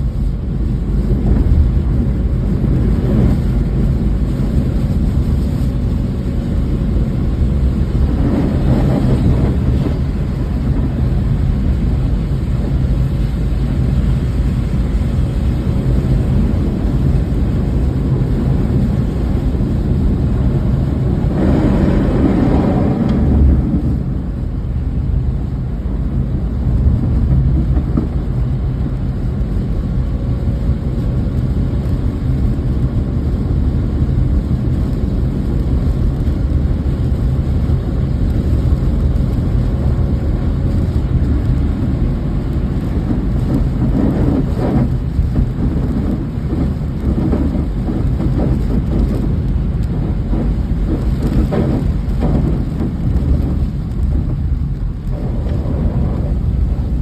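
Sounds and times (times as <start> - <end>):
low rumble: 0.0 - 57.0
steady rain: 0.0 - 57.0
crackly patter: 34.2 - 57.0.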